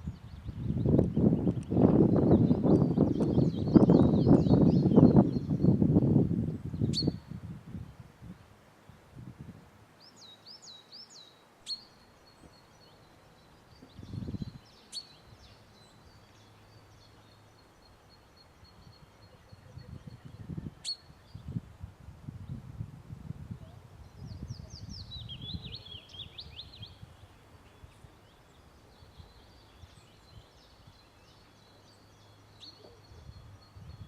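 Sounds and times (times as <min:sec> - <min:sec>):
woodland birds singing: 0:00.0 - 0:09.3, 0:09.9 - 0:34.0.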